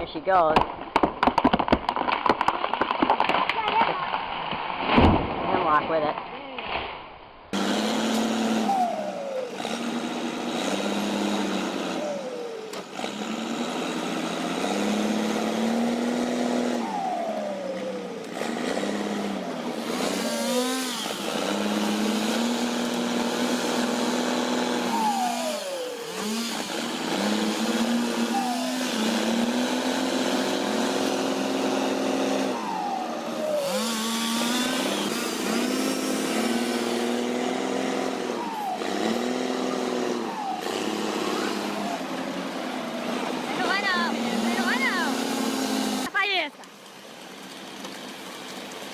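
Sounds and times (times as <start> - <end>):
motor whining: 7.6 - 46.3.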